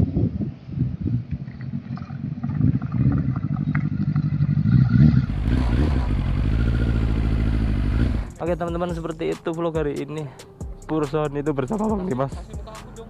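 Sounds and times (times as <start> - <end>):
motorcycle engine running: 3.2 - 9.1.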